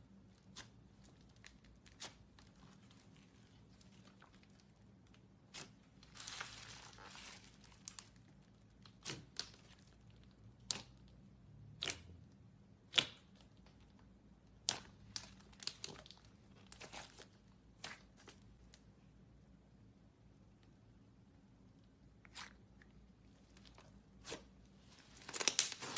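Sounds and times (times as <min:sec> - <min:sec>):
slime stretching crinkly: 0:00.3 - 0:11.1, 0:13.3 - 0:18.9, 0:22.2 - 0:25.9.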